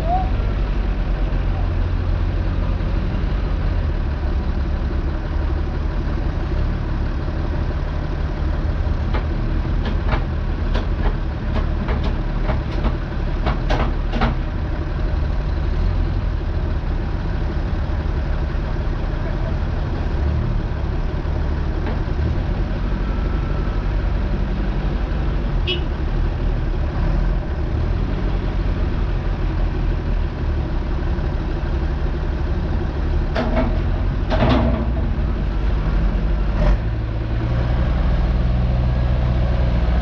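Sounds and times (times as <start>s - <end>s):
tractor diesel engine running: 0.0s - 40.0s
sharp knocks and clatters: 9.1s - 14.5s, 33.3s - 35.2s.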